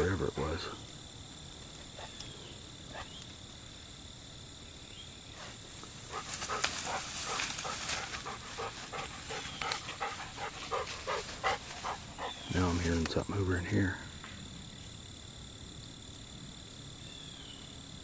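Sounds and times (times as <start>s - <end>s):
insects trilling: 0.0s - 18.0s
dog panting: 6.1s - 12.5s.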